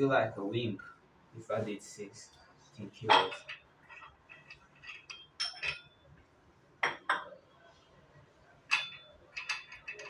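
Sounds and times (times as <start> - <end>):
metal weights clanking: 3.1 - 5.9.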